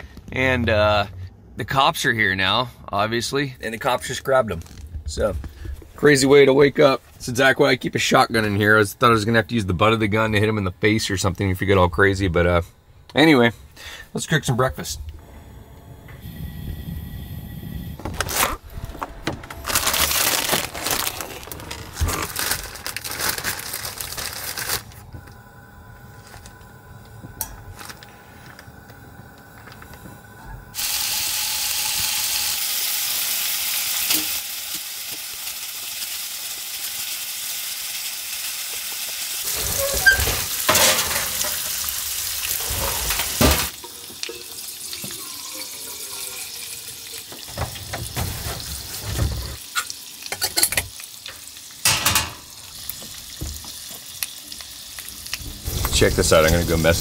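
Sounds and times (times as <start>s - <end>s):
plastic bags rustling: 18.1s - 25.3s, 27.6s - 28.8s
food sizzling in a pan: 30.8s - 57.0s.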